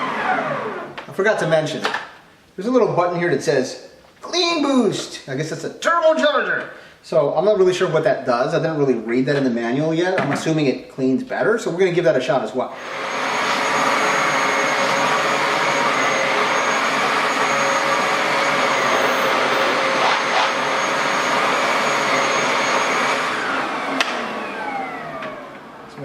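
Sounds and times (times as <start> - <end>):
carpet washer motor whining: 0.0 - 1.1, 12.8 - 26.0
suction noise: 12.8 - 25.8.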